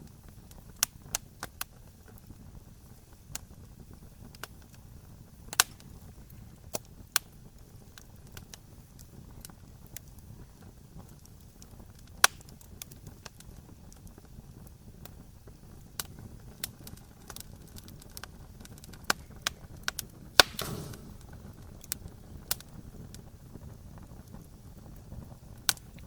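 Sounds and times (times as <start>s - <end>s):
campfire crackling and popping: 0.0s - 26.0s
brief hiss: 20.4s - 21.4s.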